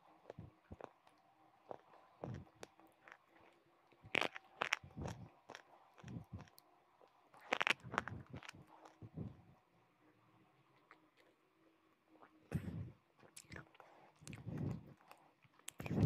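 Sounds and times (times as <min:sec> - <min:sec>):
gritty chewing: 0:00.0 - 0:09.2, 0:13.2 - 0:16.0.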